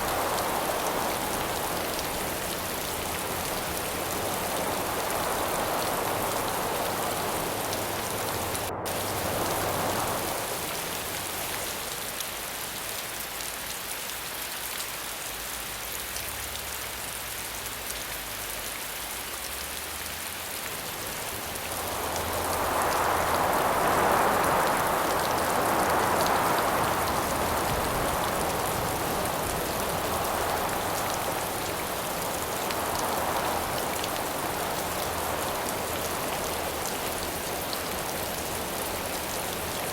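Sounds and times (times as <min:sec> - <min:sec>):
howling wind gusts: 0:00.0 - 0:12.2, 0:20.7 - 0:39.9
steady rain falling: 0:00.0 - 0:39.9.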